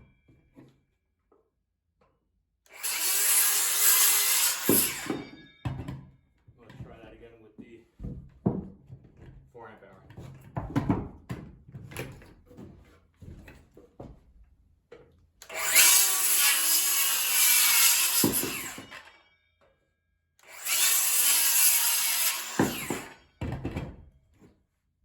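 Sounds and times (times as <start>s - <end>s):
circular saw cutting wood: 2.7s - 5.4s, 15.4s - 19.2s, 20.4s - 23.3s.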